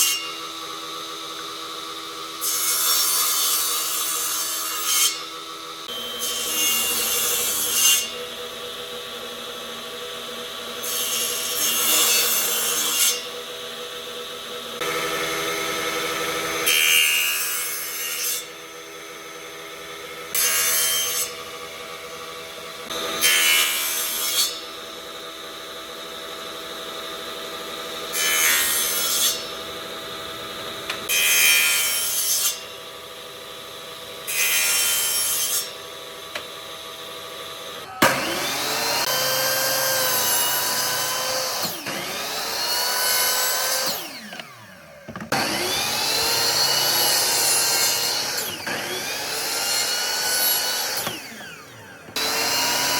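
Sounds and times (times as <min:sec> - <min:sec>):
power tool cutting wood: 0:00.0 - 0:52.9
loud motor under load: 0:35.9 - 0:52.9.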